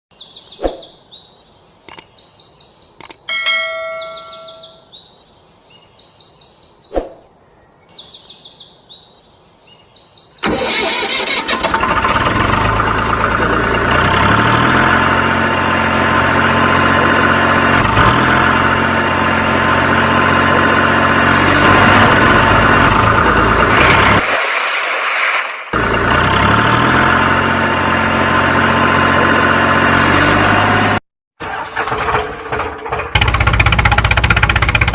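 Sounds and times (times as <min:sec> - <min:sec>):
sharp clicks: 0:01.8 - 0:02.1, 0:03.0 - 0:03.3
high repeated chirping: 0:01.8 - 0:05.1
brief tone: 0:03.3 - 0:04.9
vehicle engine running: 0:11.4 - 0:24.2, 0:25.7 - 0:34.9.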